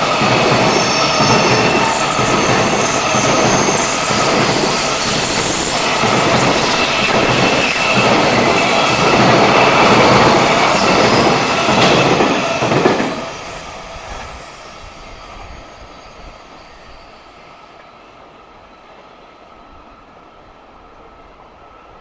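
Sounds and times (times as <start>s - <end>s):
freight train wheels on rails: 0.0s - 22.0s.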